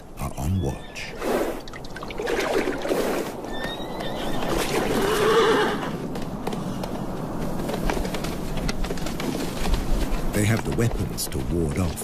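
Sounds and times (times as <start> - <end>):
horse whinnying: 3.2 - 6.1.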